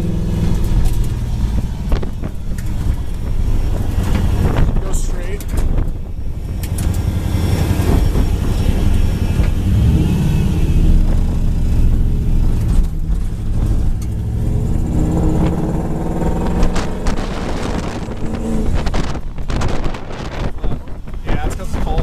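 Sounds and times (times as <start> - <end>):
engine revving and accelerating: 0.0 - 20.5.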